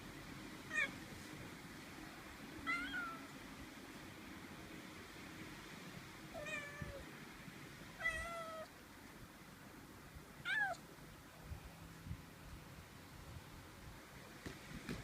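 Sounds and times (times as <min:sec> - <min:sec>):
cat meowing: 0:02.6 - 0:03.3, 0:06.4 - 0:07.0, 0:08.0 - 0:08.7, 0:10.4 - 0:10.8.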